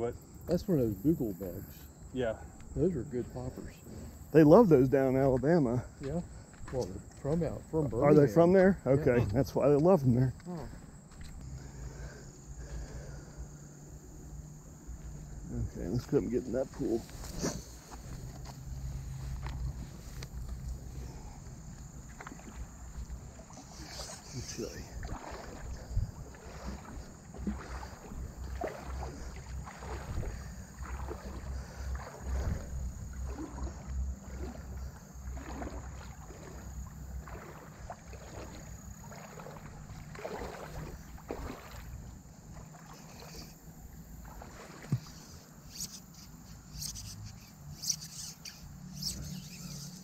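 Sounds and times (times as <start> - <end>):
water sloshing with footsteps: 2.5 - 50.0.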